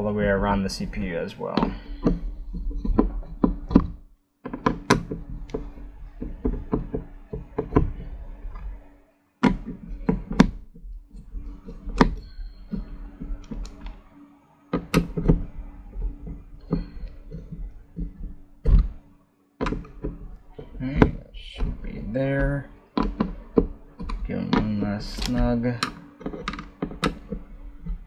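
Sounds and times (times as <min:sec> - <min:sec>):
board and tool handling: 0:01.0 - 0:14.1, 0:14.7 - 0:28.0.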